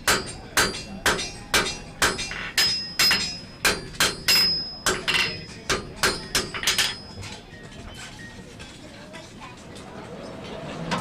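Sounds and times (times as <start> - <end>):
hammer striking steel on anvil: 0.0 - 7.2.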